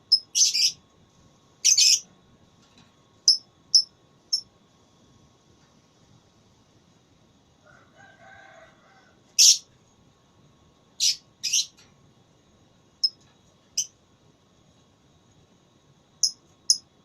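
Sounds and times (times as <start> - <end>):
lovebird high-pitched calls: 0.1 - 0.8, 1.6 - 2.1, 3.3 - 4.4, 9.4 - 9.7, 11.0 - 11.8, 16.2 - 16.8.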